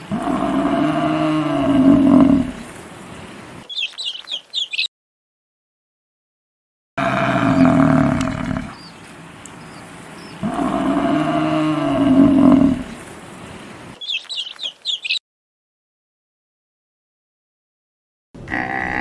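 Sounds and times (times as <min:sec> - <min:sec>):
large mammal calling: 0:00.0 - 0:02.6, 0:10.3 - 0:13.0, 0:18.5 - 0:19.0
birds chirping faintly: 0:00.0 - 0:04.9, 0:07.0 - 0:15.2.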